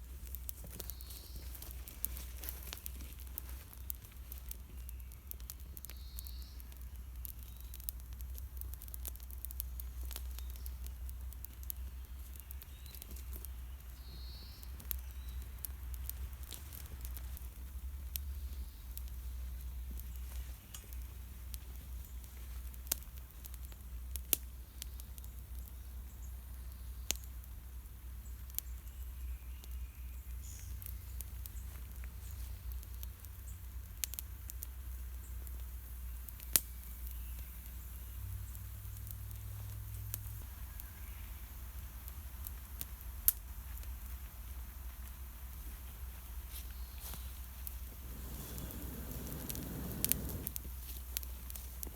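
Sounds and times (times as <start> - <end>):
campfire crackling and popping: 0.0 - 28.9, 29.6 - 51.9
low steady rumble: 47.5 - 51.5.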